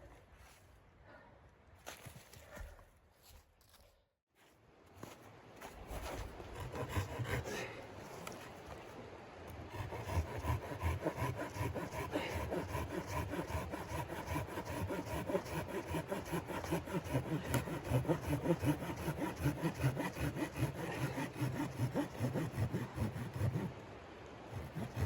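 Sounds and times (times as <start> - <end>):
hand saw cutting wood: 5.9 - 8.4, 9.6 - 23.8, 24.5 - 25.0.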